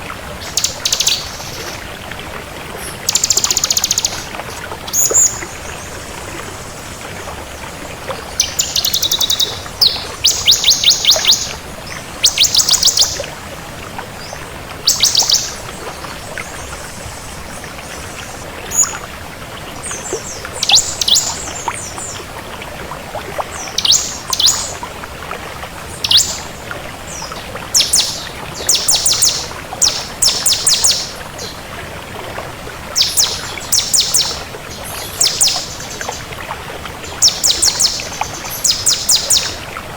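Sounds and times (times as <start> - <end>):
bird singing fast high trills: 8.4 - 11.5, 27.8 - 31.2, 33.0 - 34.4.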